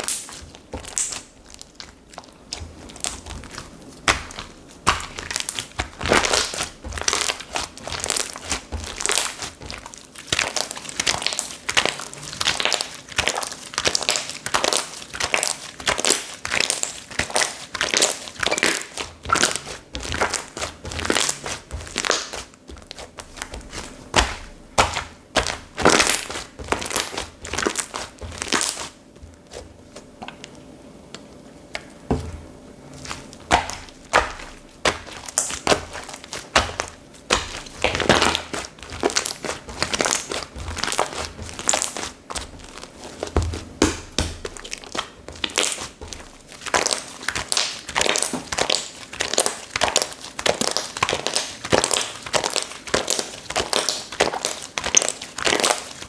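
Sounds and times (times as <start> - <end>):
slime squished by hand: 0.0 - 30.5, 32.1 - 56.0.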